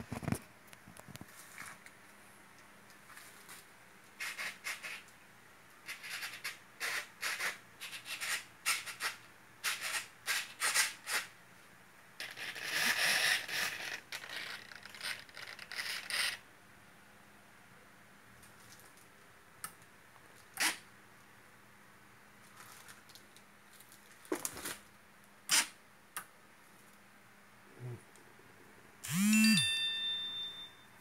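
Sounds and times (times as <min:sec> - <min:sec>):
scratching and rubbing handling noise: 0:00.0 - 0:02.0, 0:02.9 - 0:05.1.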